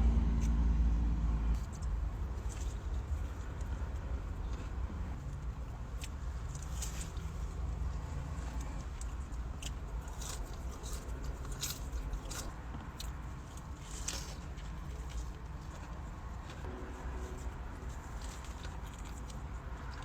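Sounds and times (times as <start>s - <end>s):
chewing crispy food: 1.6s - 20.0s
steady low rumble: 15.7s - 20.0s.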